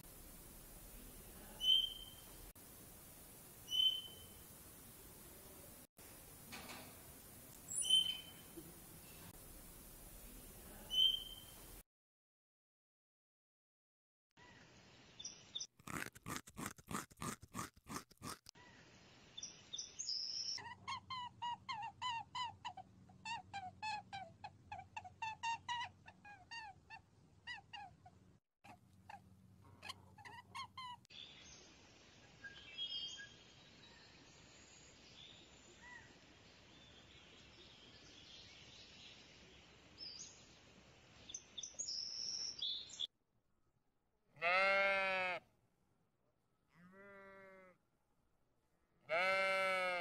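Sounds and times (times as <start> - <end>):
faint bird chirps: 1.5 - 2.4, 3.6 - 4.4, 7.6 - 9.3, 10.8 - 11.7
repeated chirping squeaks: 7.7 - 8.4
clicking chatter of small animal: 15.8 - 18.5.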